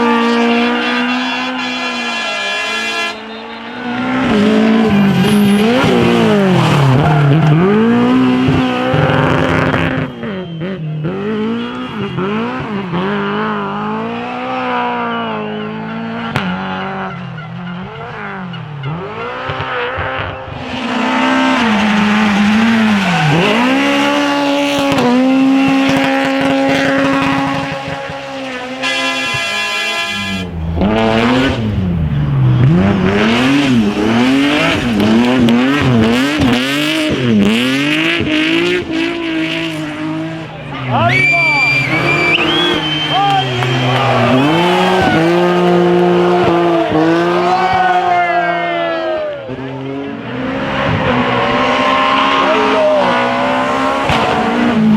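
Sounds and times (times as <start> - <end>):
car engine revving: 0.0 - 54.9
tyre squeal: 1.2 - 7.9, 40.7 - 45.6.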